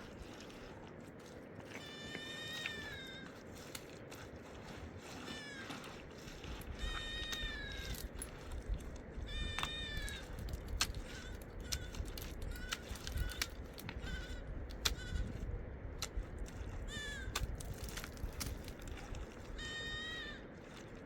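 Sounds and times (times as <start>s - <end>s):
animal giving high drawn-out calls: 1.7s - 3.4s, 5.1s - 6.1s, 6.7s - 8.1s, 9.2s - 10.4s, 11.0s - 15.4s, 16.8s - 17.5s, 19.4s - 20.7s.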